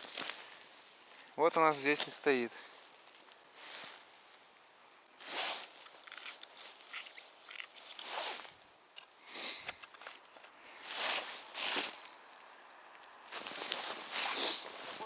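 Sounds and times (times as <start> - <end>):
footsteps crunching in snow: 1.7 - 4.4, 10.7 - 15.0
small clicks and rustles: 5.1 - 10.6.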